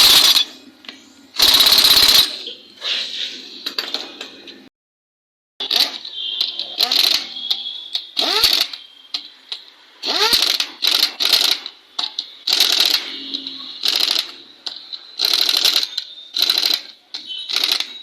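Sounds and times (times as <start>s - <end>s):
hand tools clicking on metal parts: 0.0s - 0.4s, 1.4s - 2.3s.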